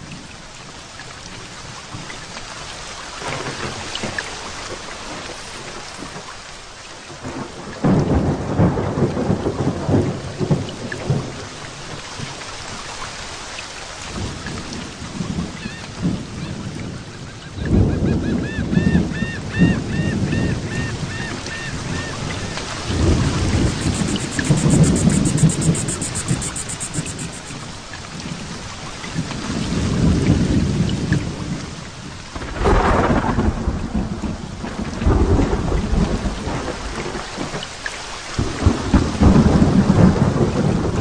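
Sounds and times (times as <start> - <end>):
heavy rain falling: 0.0 - 41.0
thunder rolling: 17.7 - 27.6, 32.3 - 37.3, 38.4 - 41.0.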